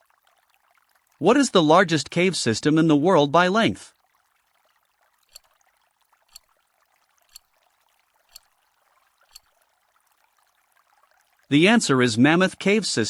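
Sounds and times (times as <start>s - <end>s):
timer ticking: 5.3s - 5.5s, 7.3s - 7.5s, 8.3s - 8.5s, 9.3s - 9.5s.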